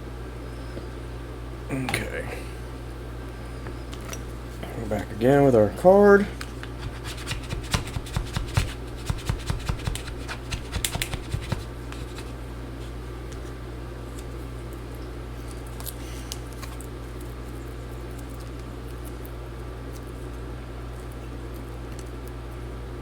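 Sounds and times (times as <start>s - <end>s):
steady low hum: 0.0s - 23.0s
plastic card scraping: 6.7s - 12.4s.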